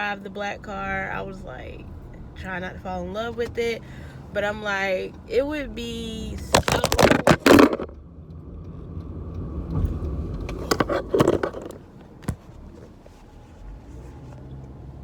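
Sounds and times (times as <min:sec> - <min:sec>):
car rumbling: 0:00.0 - 0:15.0
clicks and rattles: 0:06.4 - 0:08.0, 0:10.4 - 0:12.4.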